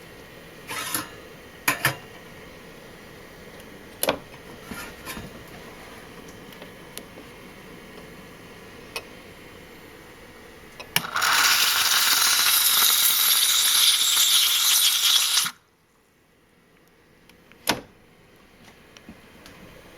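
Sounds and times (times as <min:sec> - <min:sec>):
steam wand hissing: 0:11.0 - 0:15.6.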